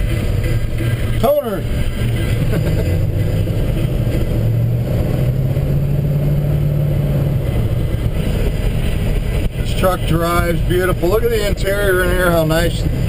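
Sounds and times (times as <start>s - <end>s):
pickup engine running: 0.0s - 13.0s
road noise: 0.0s - 13.0s.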